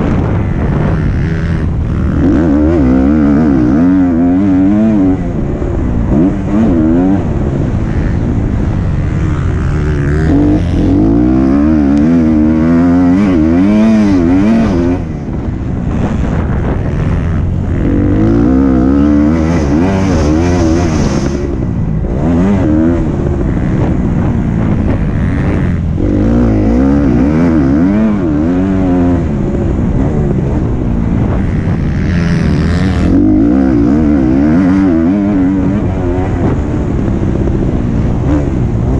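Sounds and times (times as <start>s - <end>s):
motocross bike engine revving: 0.0s - 38.9s.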